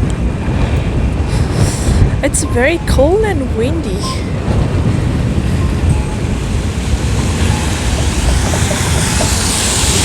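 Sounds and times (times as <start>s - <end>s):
city street traffic: 0.0s - 10.0s
wind buffeting microphone: 0.0s - 10.0s
tyres hissing on wet pavement: 7.8s - 10.0s.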